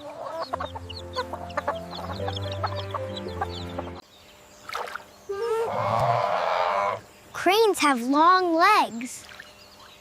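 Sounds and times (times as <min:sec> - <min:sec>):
hen clucking: 0:00.0 - 0:04.0, 0:05.3 - 0:07.1
background music held tones: 0:00.0 - 0:04.3
chicks cheeping: 0:00.0 - 0:07.4, 0:09.1 - 0:10.0.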